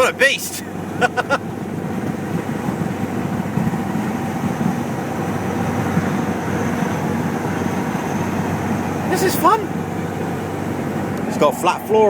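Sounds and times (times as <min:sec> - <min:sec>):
truck engine deep rumble: 0:00.0 - 0:12.0.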